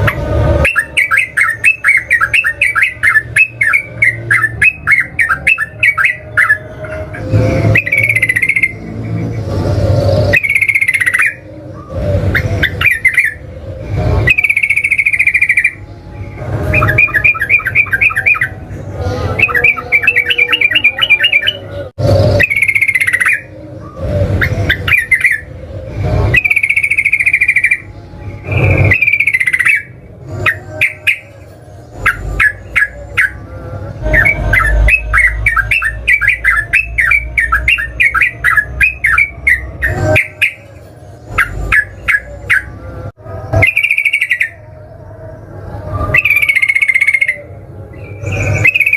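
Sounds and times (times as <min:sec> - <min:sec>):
bird singing whistled phrases: 0:00.6 - 0:06.6, 0:10.3 - 0:13.4, 0:16.7 - 0:18.6, 0:19.4 - 0:23.5, 0:28.5 - 0:29.9, 0:43.6 - 0:44.6, 0:46.1 - 0:48.9.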